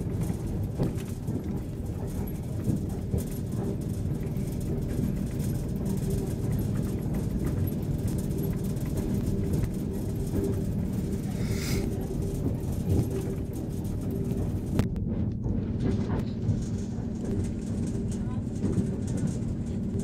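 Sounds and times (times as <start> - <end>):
train rumbling: 0.0 - 20.0
short hiss: 11.3 - 11.9.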